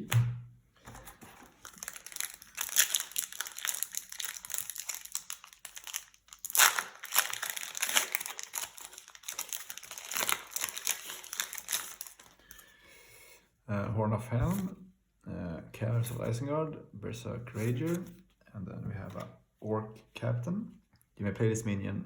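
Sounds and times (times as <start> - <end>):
foil wrapper crinkling: 1.4 - 12.6.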